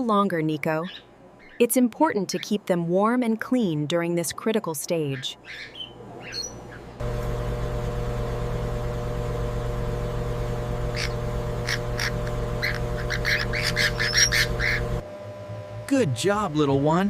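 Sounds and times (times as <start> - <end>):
low mechanical hum: 5.8 - 17.0
bird chick begging squawks: 10.9 - 15.0.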